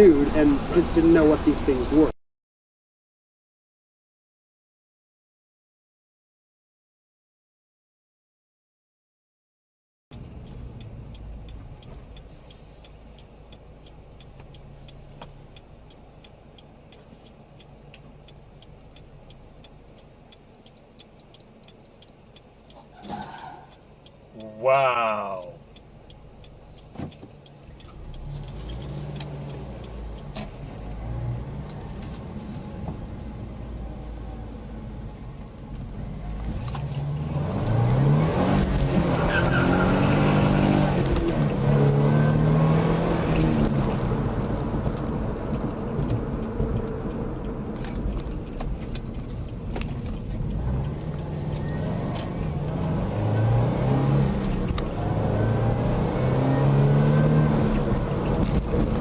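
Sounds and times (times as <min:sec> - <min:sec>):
car engine accelerating: 0:24.8 - 0:59.0
light clicks and rattles: 0:26.7 - 0:32.3, 0:36.4 - 0:38.0, 0:43.1 - 0:53.0.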